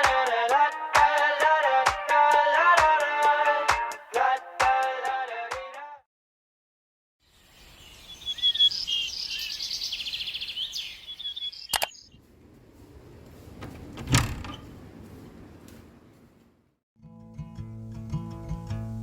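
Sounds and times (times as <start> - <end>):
small birds chirping and trilling: 7.2 - 12.3
sharp click: 11.7 - 12.0.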